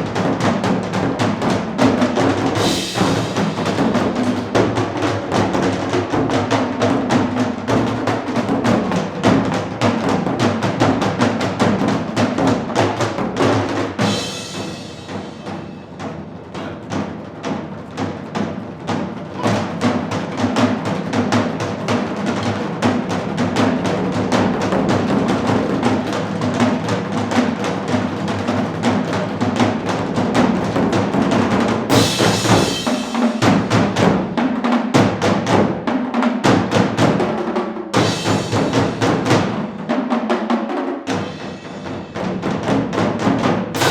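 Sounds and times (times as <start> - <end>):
percussion ensemble drumming: 0.0 - 43.9
cymbal crash: 2.6 - 4.3, 14.0 - 15.9, 31.9 - 33.8, 38.0 - 39.5.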